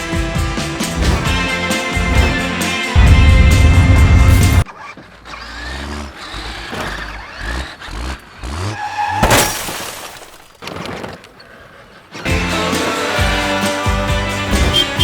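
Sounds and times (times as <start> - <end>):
car engine revving: 0.0 - 9.3, 12.0 - 15.0
loud crash-like hit: 1.0 - 4.7.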